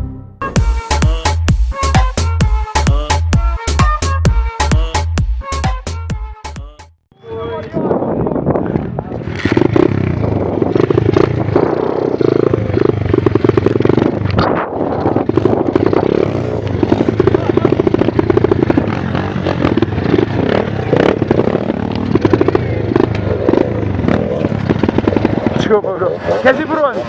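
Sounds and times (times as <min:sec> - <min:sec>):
motorbike engine revving: 0:08.8 - 0:27.0.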